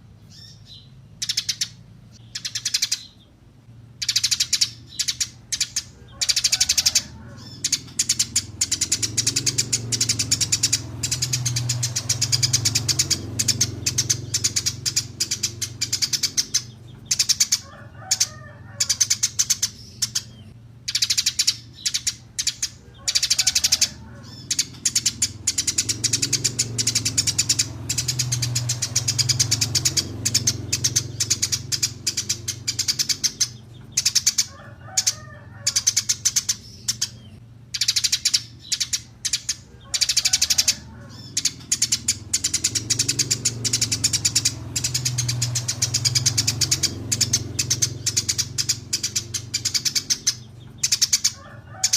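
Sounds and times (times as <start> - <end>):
small songbirds chirping: 0.0 - 51.9.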